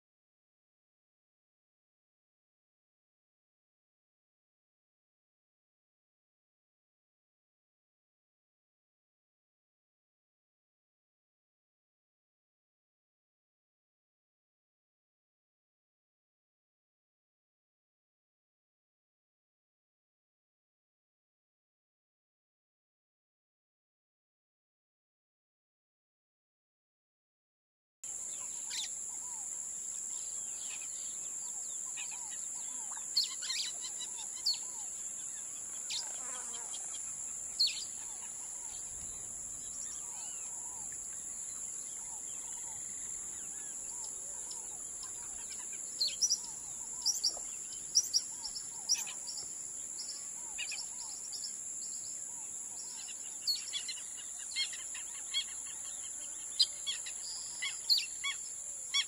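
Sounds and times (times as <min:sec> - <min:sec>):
birds chirping: 0:28.1 - 0:59.0
steady high-pitched hiss: 0:28.1 - 0:59.0.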